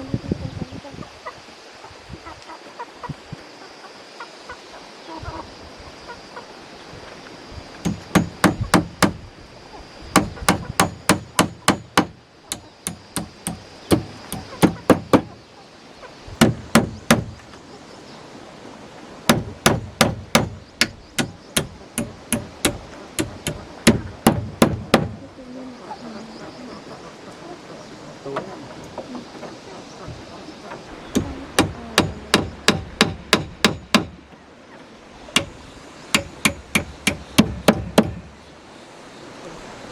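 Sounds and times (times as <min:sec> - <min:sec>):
hammer driving nails into wood: 0:07.8 - 0:09.2, 0:10.2 - 0:15.3, 0:16.4 - 0:17.3, 0:19.3 - 0:25.2, 0:31.2 - 0:34.2, 0:36.2 - 0:38.2.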